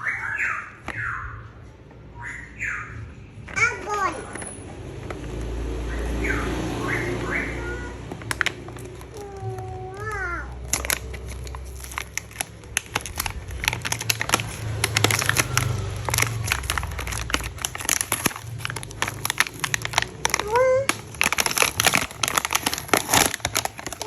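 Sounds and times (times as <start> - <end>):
plastic packaging crinkling: 7.6 - 24.0.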